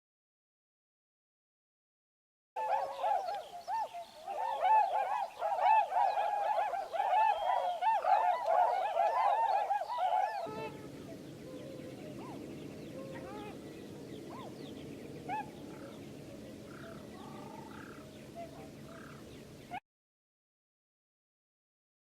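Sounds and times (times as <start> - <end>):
flock of waterbirds calling: 2.6 - 19.8.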